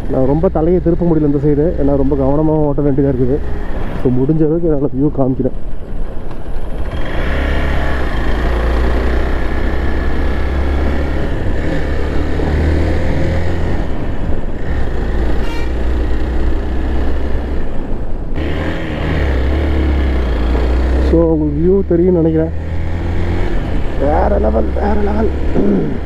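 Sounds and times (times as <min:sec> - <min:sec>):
motorcycle engine rumble: 0:00.0 - 0:26.0
short horn toot: 0:15.4 - 0:16.0.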